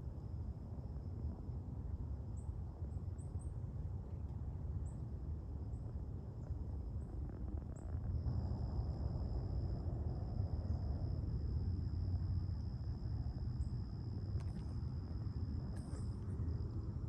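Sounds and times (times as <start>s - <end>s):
low steady rumble: 0.0s - 17.0s
high insect drone: 7.2s - 17.0s.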